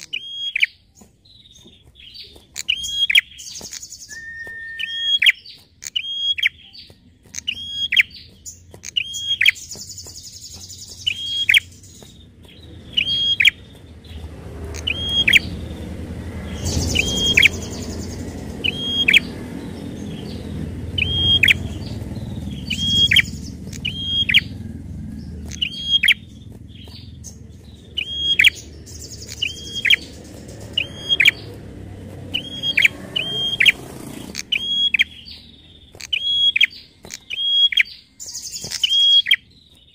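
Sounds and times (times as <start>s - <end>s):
bird sharp high calls: 0.0s - 39.8s
bird buzzy chatters: 7.2s - 39.4s
low rumble: 11.0s - 35.9s.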